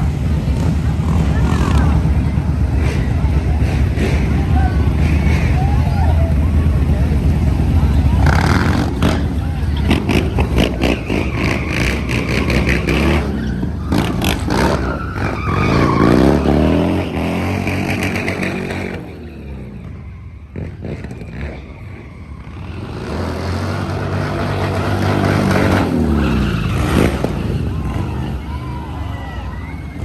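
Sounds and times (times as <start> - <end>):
dirt bike engine revving: 22.8 - 28.4.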